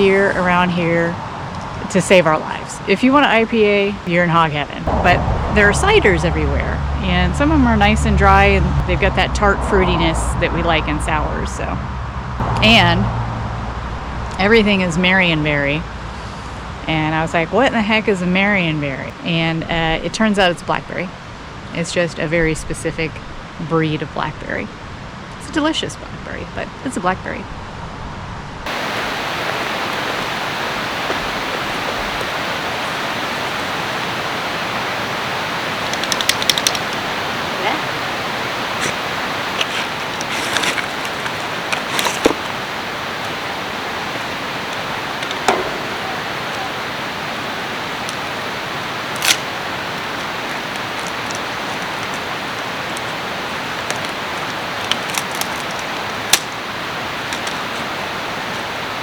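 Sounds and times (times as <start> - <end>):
river rushing: 28.7 - 59.0
sharp clicks: 35.9 - 37.0.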